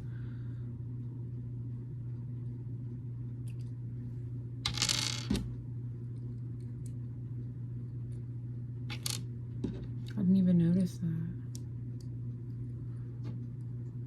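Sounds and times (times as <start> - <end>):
steady low hum: 0.0 - 14.0
plastic bricks clicking: 8.9 - 9.2.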